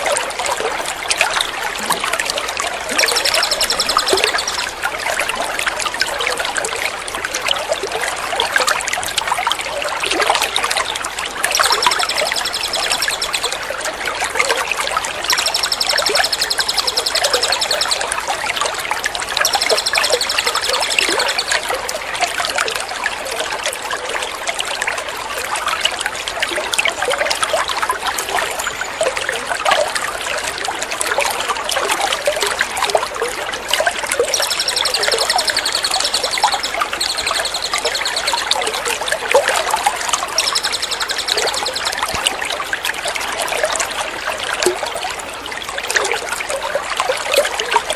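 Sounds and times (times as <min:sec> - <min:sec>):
water trickling and splashing: 0:00.0 - 0:47.9
songbird trilling: 0:02.9 - 0:04.8, 0:11.4 - 0:13.7, 0:15.3 - 0:18.1, 0:19.4 - 0:21.6, 0:34.2 - 0:38.9, 0:39.9 - 0:42.2.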